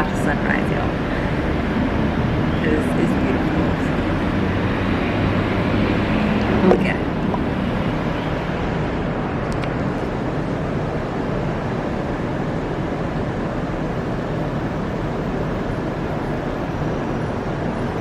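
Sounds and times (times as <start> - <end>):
outdoor background rush: 0.0 - 18.0.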